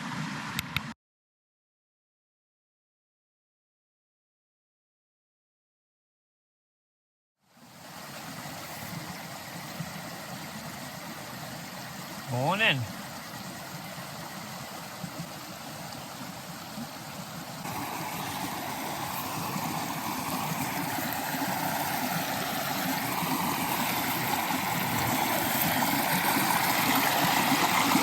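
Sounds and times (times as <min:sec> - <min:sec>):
creek water rushing: 0:07.4 - 0:28.0.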